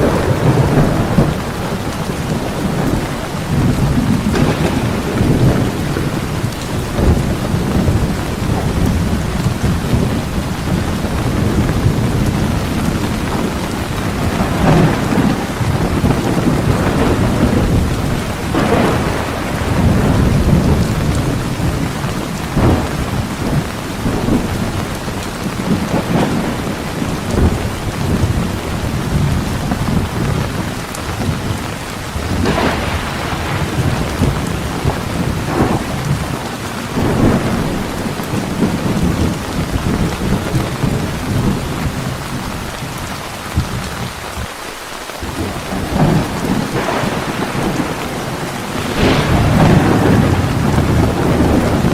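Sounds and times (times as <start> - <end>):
sharp crackling lightning strikes: 0.0 - 42.3, 45.2 - 51.9
rolling thunder: 0.0 - 44.5, 45.2 - 51.9
heavy rain falling: 0.0 - 51.9.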